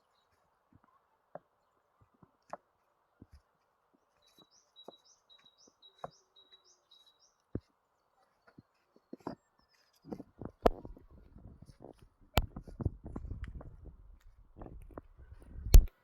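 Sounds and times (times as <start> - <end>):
small bird chirping: 4.1 - 11.3
sharp clicks: 15.7 - 15.9.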